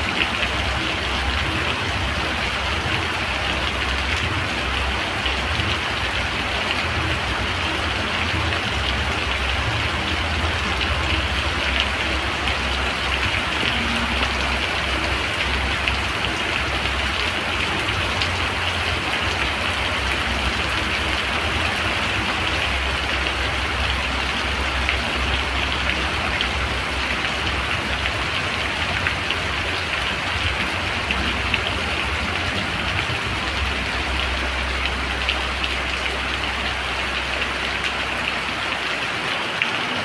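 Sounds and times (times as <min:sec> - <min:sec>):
raindrops ticking: 0:00.0 - 0:40.0
steady rain falling: 0:00.0 - 0:40.0.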